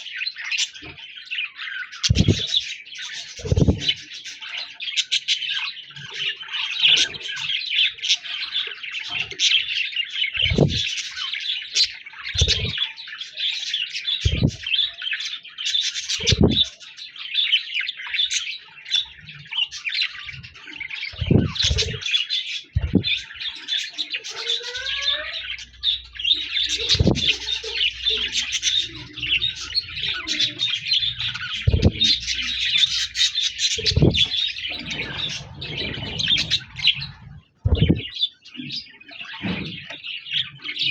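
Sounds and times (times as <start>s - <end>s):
budgerigars chattering: 0.0s - 40.9s
short low thumps: 2.1s - 2.4s, 10.4s - 10.8s, 12.4s - 12.7s, 14.3s - 14.6s, 16.3s - 16.6s, 21.2s - 22.0s, 22.8s - 23.1s, 31.7s - 32.1s, 33.8s - 34.3s, 37.3s - 38.1s.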